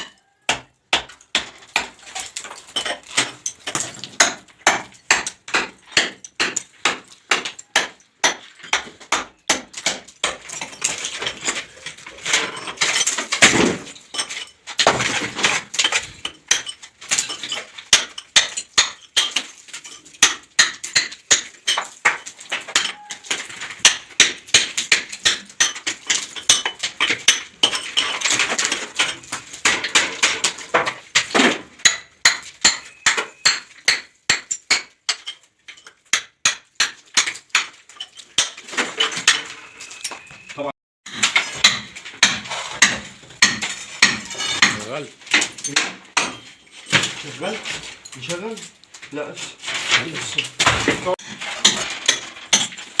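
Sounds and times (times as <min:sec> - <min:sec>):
hammer striking plaster ceiling: 0:03.0 - 0:10.5.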